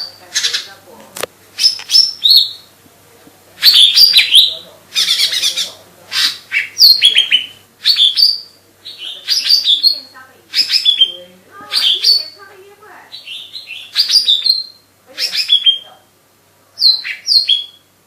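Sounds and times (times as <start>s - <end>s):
bird chirping and whistling: 1.6s - 2.7s, 3.6s - 12.5s, 13.1s - 16.0s, 16.8s - 17.9s.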